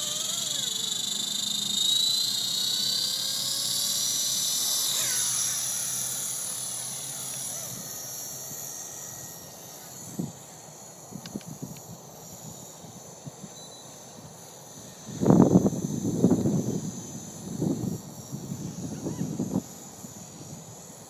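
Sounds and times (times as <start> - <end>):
rc helicopter rotor whine: 0.0 - 21.0
wind noise: 15.0 - 20.8.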